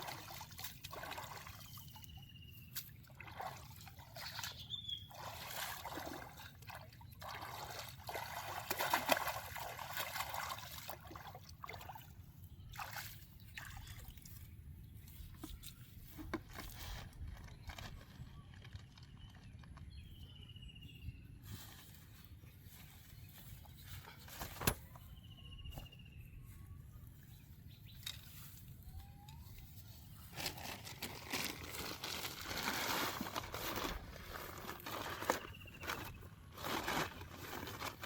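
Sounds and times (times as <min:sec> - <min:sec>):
small water splashes: 0:00.0 - 0:14.5
water trickling and sloshing: 0:00.0 - 0:17.8.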